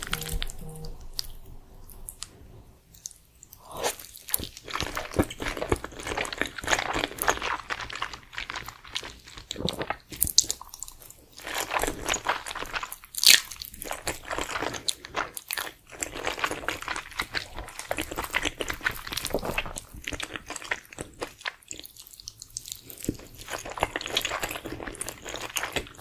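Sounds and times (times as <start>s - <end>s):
slurping and chewing noodles: 1.2s - 26.0s.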